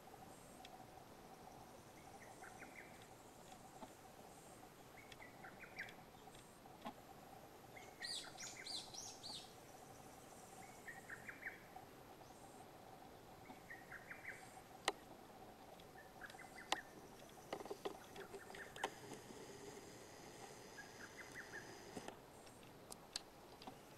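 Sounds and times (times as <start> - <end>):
bird song: 0.0 - 6.6, 7.6 - 19.0, 19.6 - 23.0
sharp clicks: 15.7 - 23.8.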